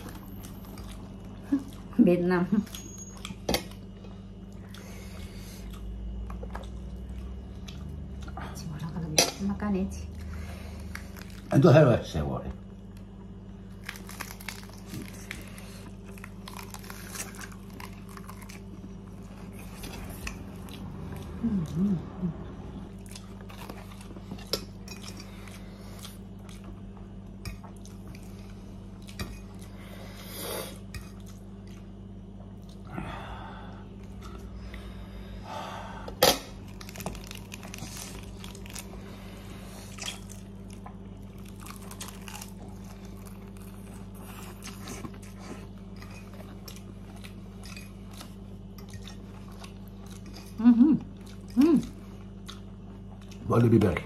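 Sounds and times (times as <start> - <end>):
steady low hum: 0.0 - 54.0
person chewing: 2.8 - 8.4, 12.9 - 33.1, 36.0 - 53.5.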